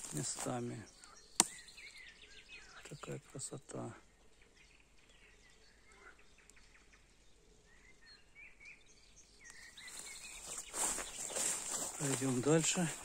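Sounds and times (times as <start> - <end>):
faint birds chirping: 0.0 - 13.0
outdoor background noise: 0.0 - 13.0
rustling: 9.8 - 13.0.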